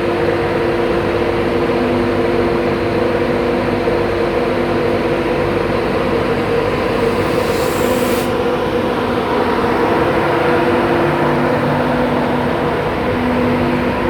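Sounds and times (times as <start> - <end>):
train engine drone: 0.0 - 14.0
short high hiss: 7.0 - 8.6.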